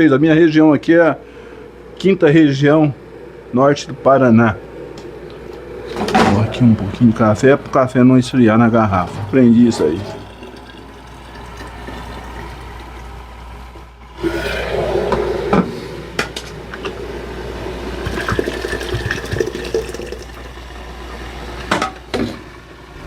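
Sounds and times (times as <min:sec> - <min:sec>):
coffee pouring into flask: 0:08.4 - 0:13.5, 0:17.8 - 0:21.8.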